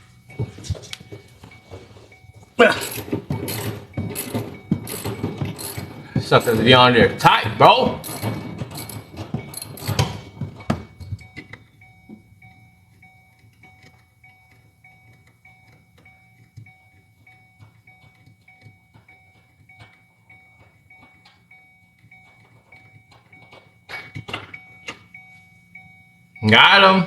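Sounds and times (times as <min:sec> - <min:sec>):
tool clunks and clicks: 0:00.0 - 0:26.0
car warning chime: 0:00.0 - 0:27.0.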